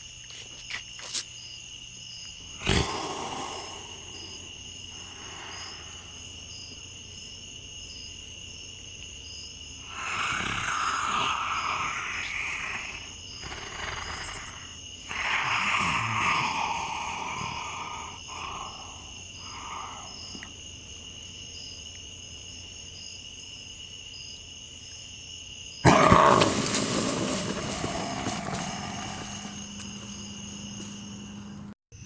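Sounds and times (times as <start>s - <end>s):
insect drone: 0.0s - 32.0s
creature growling: 2.6s - 5.7s, 9.8s - 20.1s, 25.8s - 29.7s.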